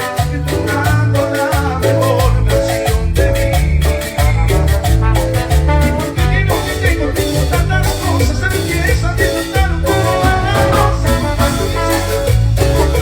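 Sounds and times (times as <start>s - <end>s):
band playing latin dance music: 0.0s - 13.0s.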